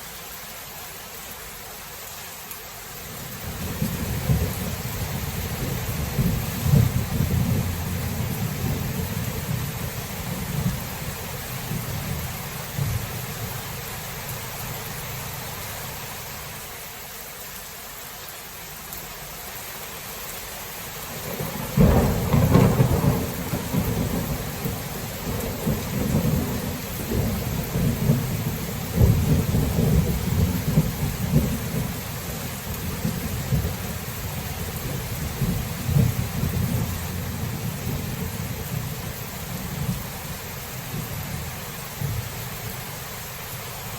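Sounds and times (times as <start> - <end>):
steady rain: 0.0 - 43.9
rumbling thunder: 3.4 - 13.5, 21.2 - 40.2
loud thunderclap: 3.5 - 9.6, 21.2 - 31.9, 35.2 - 38.8.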